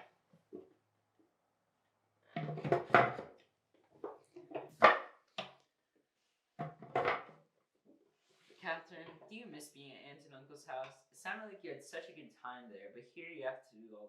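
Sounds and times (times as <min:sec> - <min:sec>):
wooden knocks and clatter: 0:02.4 - 0:05.6, 0:06.6 - 0:07.4.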